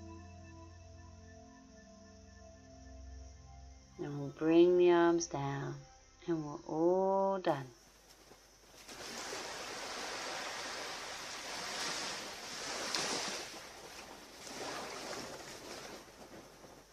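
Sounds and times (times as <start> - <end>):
surf washing on a beach: 8.8 - 16.9.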